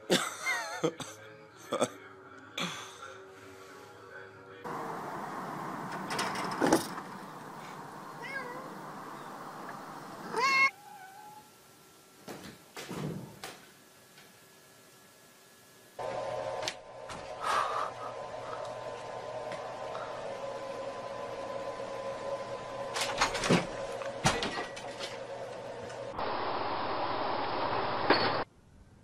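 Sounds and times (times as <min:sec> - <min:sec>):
cat meowing: 0:08.1 - 0:08.9, 0:10.2 - 0:11.6.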